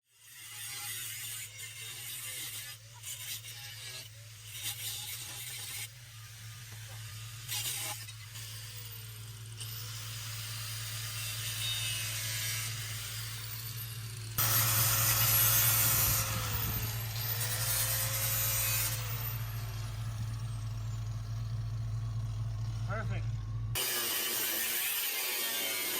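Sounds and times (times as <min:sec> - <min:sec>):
angle grinder cutting metal: 0:00.1 - 0:23.0, 0:23.8 - 0:25.9.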